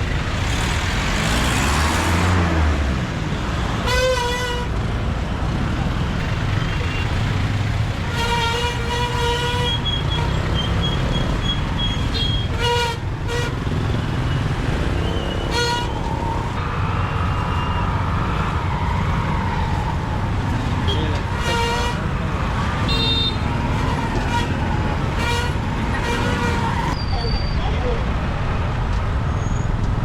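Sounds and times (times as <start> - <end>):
motorbike engines rumbling: 0.0 - 30.0
road noise: 0.0 - 30.0
vehicle horns tooting: 3.8 - 4.8, 6.6 - 7.2, 8.0 - 14.0, 15.0 - 16.3, 20.8 - 27.0.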